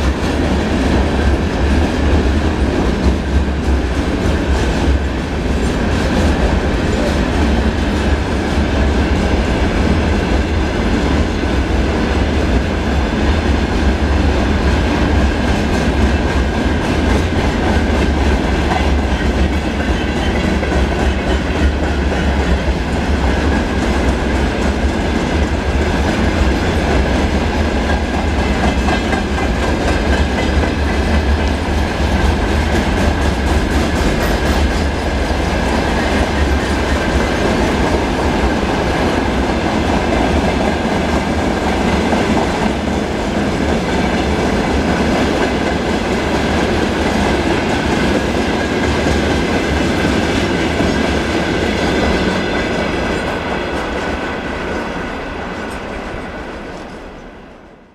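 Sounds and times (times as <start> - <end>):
freight train wheels rumbling: 0.0 - 57.9.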